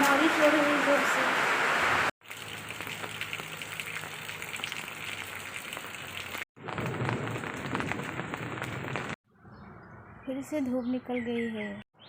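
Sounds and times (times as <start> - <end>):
heavy rain falling: 4.9 - 9.2.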